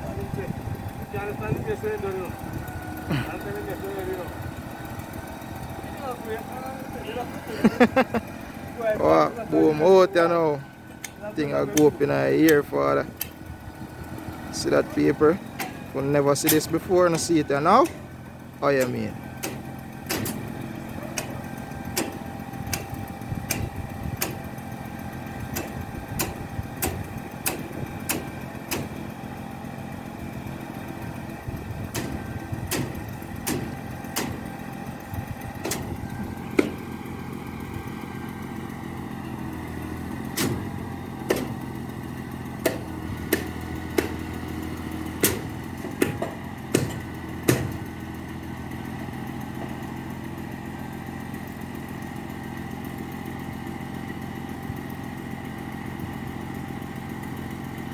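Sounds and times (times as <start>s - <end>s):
diesel engine running: 0.0s - 57.9s
sharp knocks: 18.8s - 20.6s, 31.9s - 34.6s, 35.6s - 37.0s, 40.3s - 41.7s, 42.6s - 48.0s.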